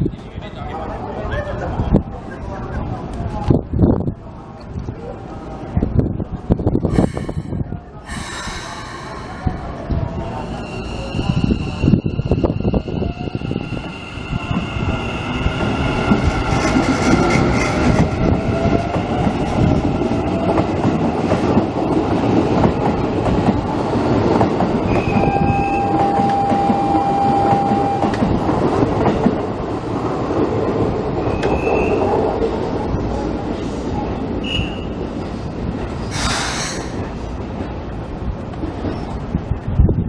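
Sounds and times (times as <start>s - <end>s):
train wheels rumbling and clacking: 6.8s - 39.7s
steady tone: 6.9s - 10.8s.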